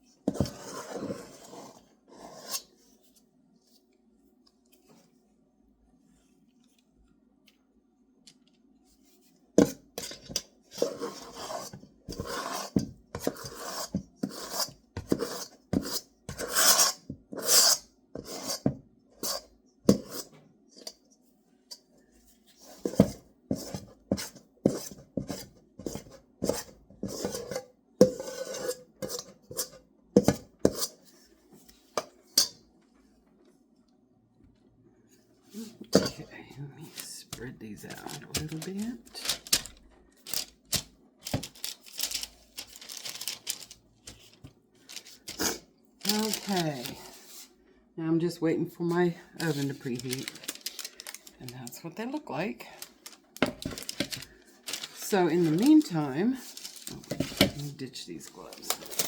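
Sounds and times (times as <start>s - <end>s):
scoop scraping dough in bowl: 0.3s - 2.8s, 9.6s - 21.0s, 22.6s - 31.1s, 45.0s - 47.5s.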